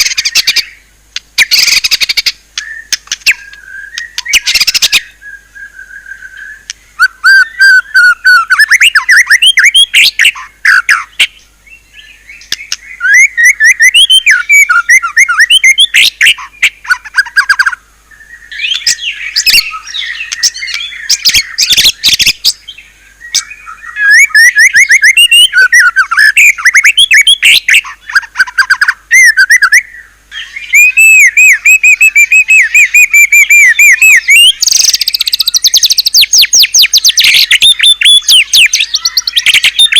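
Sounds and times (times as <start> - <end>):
songbird whistling and trilling: 0.0 - 0.8, 1.4 - 39.9.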